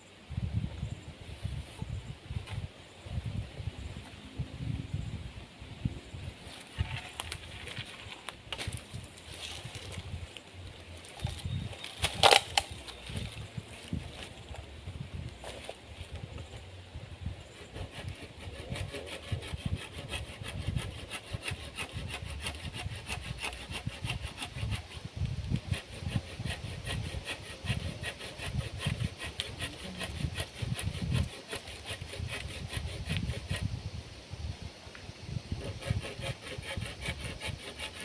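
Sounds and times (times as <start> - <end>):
hand saw cutting wood: 11.2 - 14.0, 17.4 - 33.7, 35.5 - 38.0.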